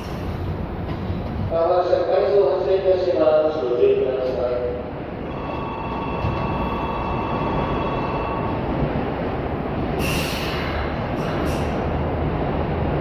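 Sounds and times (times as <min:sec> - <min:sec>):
train rumble: 0:00.0 - 0:13.0
high steady whine: 0:04.7 - 0:13.0
hiss of air: 0:09.8 - 0:12.0.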